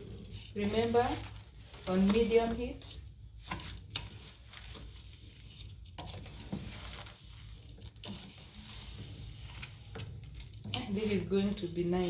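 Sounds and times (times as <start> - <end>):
spoon stirring rice in a pot: 0.0 - 12.0
spoon scraping a pot: 3.4 - 12.0.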